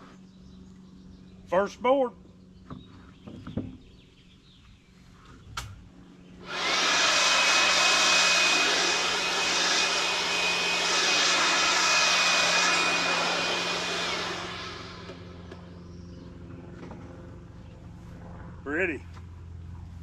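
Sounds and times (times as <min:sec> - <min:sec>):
chainsaw cutting log: 0:06.4 - 0:15.6.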